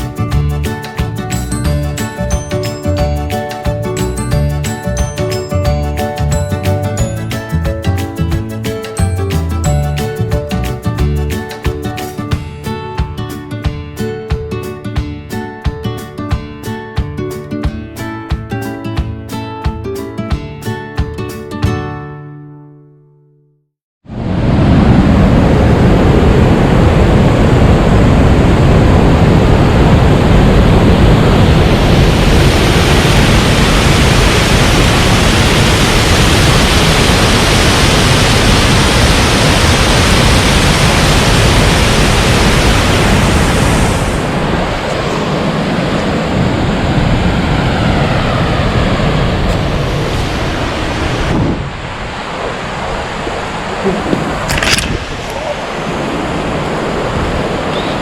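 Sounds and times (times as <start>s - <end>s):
waterfall rushing: 28.7s - 46.5s, 48.6s - 58.0s.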